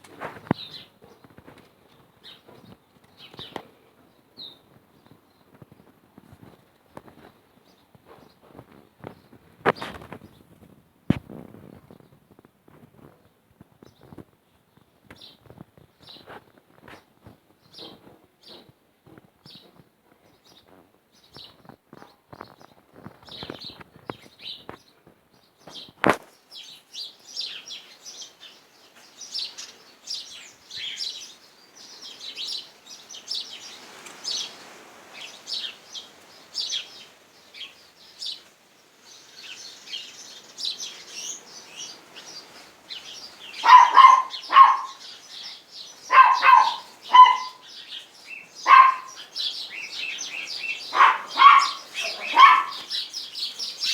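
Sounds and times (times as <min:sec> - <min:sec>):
sparrows chirping: 0:00.0 - 0:10.6, 0:13.0 - 0:18.8, 0:19.4 - 0:53.9
dog barking: 0:43.6 - 0:45.1, 0:46.1 - 0:47.6, 0:48.6 - 0:49.2, 0:50.9 - 0:53.0.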